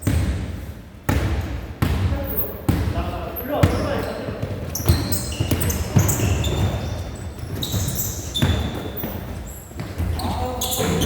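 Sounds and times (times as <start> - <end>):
basketball bouncing on court: 0.0 - 11.0
sneaker squeaks: 2.2 - 11.0.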